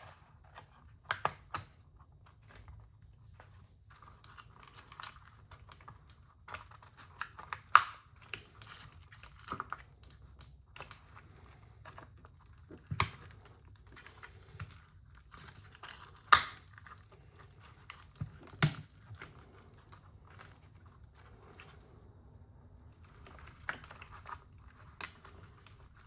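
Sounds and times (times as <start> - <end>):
plastic parts clicking and rustling: 0.0 - 22.0, 22.9 - 26.0.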